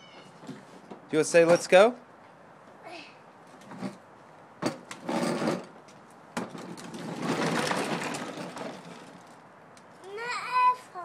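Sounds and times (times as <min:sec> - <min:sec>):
pedal tractor rattling: 0:06.4 - 0:09.4.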